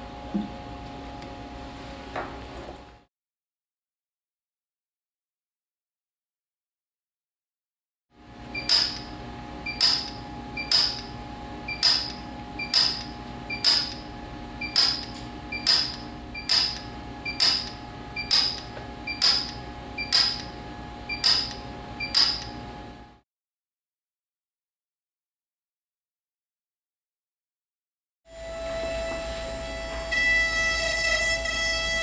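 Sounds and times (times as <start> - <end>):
welder unit humming: 0.0 - 3.0, 8.2 - 23.2, 28.3 - 32.0.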